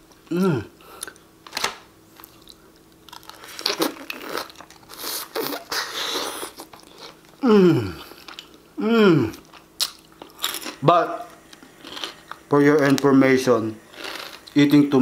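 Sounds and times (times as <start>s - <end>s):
closed-mouth hums of enjoyment: 0.2s - 1.2s, 7.4s - 9.6s.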